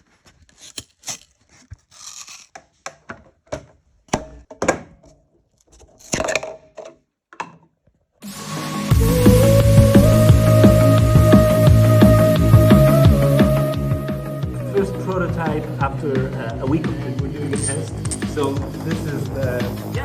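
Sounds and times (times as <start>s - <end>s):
hard objects knocking and scraping: 0.3s - 7.9s, 17.4s - 18.9s
music: 8.2s - 20.0s.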